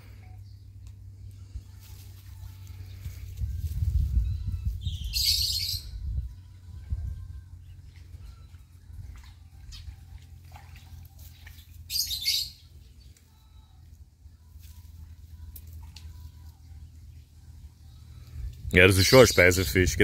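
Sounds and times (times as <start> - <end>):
birds chirping faintly: 0.0 - 20.0
low rumble: 5.8 - 11.8.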